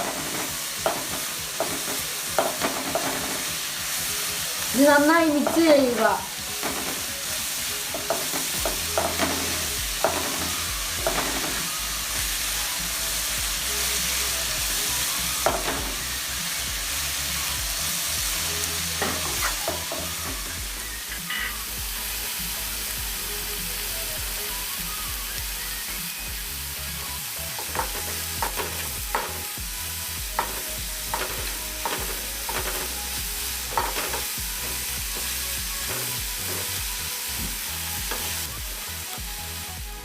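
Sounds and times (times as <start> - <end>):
food sizzling in oil: 0.0 - 40.0
spoon scraping a pan: 30.4 - 38.5.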